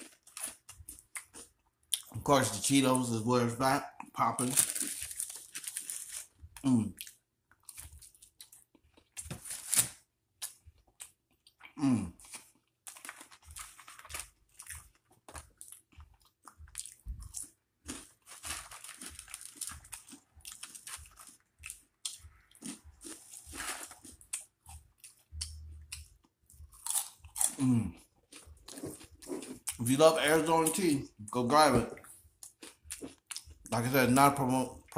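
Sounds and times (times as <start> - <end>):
chewing crunchy snacks: 0.0 - 2.6, 4.4 - 9.4, 10.4 - 30.8, 32.0 - 33.9.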